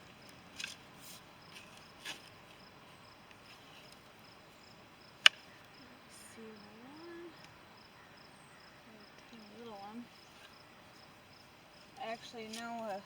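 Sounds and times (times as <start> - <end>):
insect chirping: 0.0 - 13.0
scrapes in soil: 0.5 - 4.3, 11.8 - 13.0.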